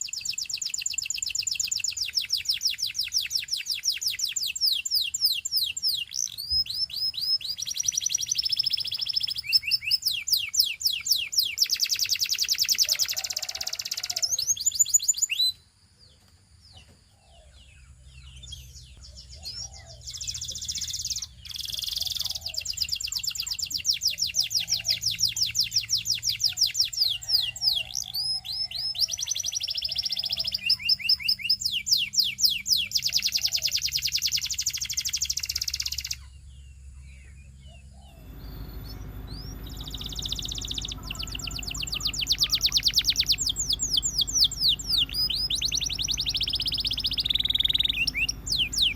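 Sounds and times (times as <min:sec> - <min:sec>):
canary singing trills: 0:00.0 - 0:48.9
faint low hum: 0:32.9 - 0:48.9.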